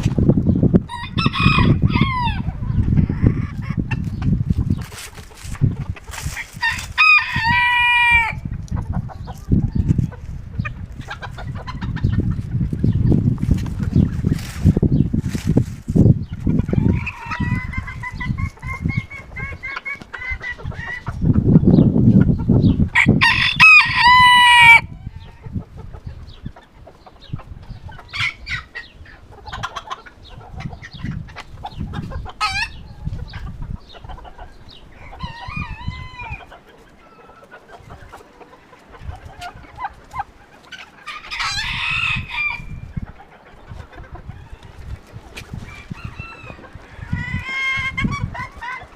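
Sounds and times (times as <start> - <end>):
hens clucking: 0.0 - 48.9
wind buffeting microphone: 0.0 - 48.9
roosters crowing: 0.9 - 3.8, 6.1 - 8.5, 16.5 - 21.2, 22.9 - 25.6, 32.3 - 33.2, 34.2 - 40.0, 40.8 - 43.0, 44.2 - 48.9.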